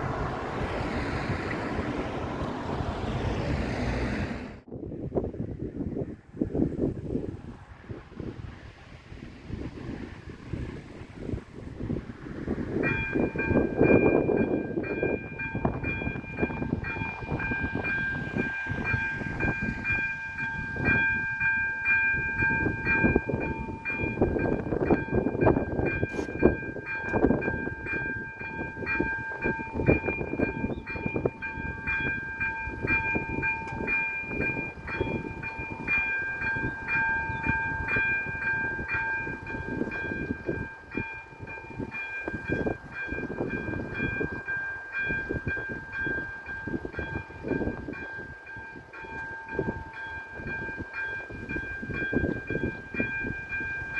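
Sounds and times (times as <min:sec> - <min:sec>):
level crossing warning bells: 0:11.8 - 0:53.9.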